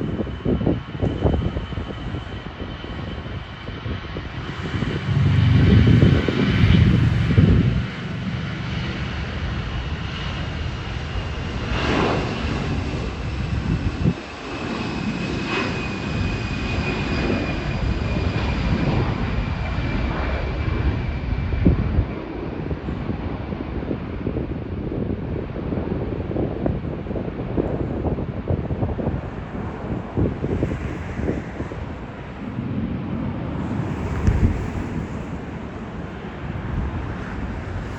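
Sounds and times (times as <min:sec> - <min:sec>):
high engine whine: 0:00.0 - 0:20.9
jet engines passing: 0:00.0 - 0:37.9.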